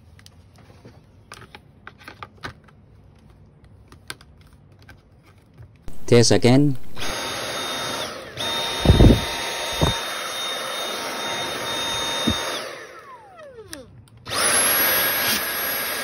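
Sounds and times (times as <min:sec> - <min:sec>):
vacuum cleaner motor whine: 0:06.7 - 0:16.0.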